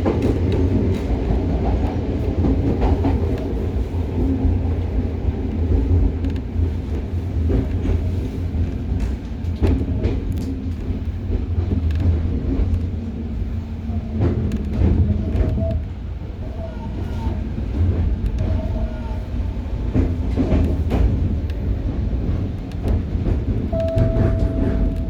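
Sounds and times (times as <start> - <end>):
train wheels rumbling: 0.0 - 25.0.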